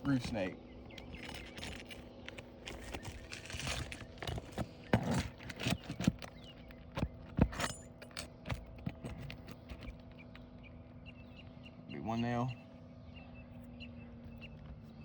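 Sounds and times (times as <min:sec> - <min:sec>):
metal tool scraping under shingles: 0:01.0 - 0:09.9.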